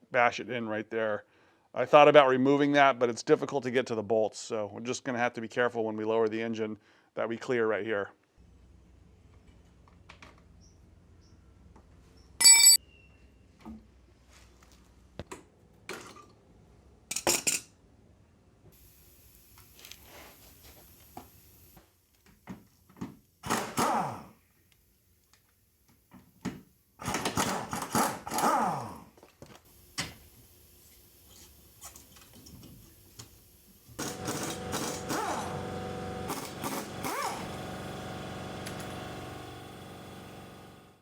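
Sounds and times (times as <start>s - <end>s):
handheld electric power tool: 18.8s - 21.8s, 23.4s - 24.4s, 27.0s - 29.1s, 29.7s - 41.0s.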